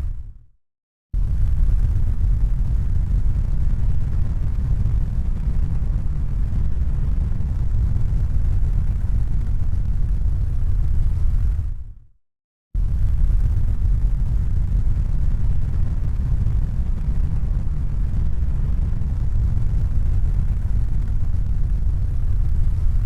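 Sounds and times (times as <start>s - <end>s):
steady low rumbling: 12.8s - 23.0s.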